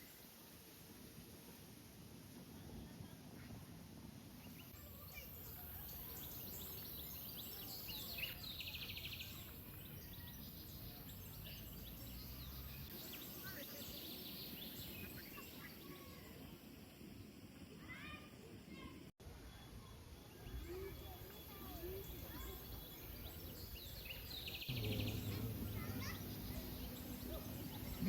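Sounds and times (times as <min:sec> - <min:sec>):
small birds chirping: 0:04.4 - 0:16.5, 0:20.2 - 0:28.0
bird trill: 0:20.2 - 0:28.0
low outdoor rumble: 0:24.7 - 0:28.0.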